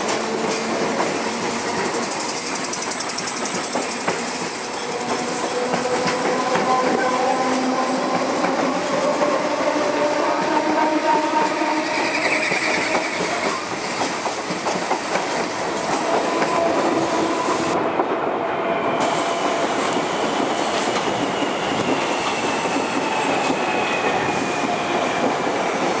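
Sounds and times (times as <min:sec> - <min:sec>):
train wheels rumbling on rails: 0:00.0 - 0:26.0
faint wheel squeal: 0:11.8 - 0:13.6.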